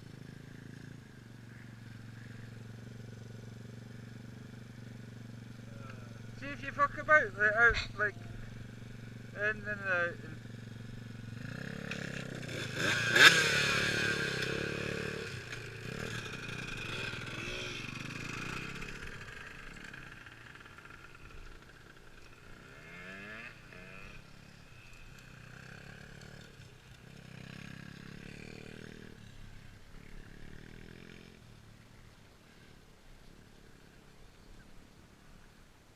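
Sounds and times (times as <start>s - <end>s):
electric dirt bike motor whine: 11.2s - 21.4s.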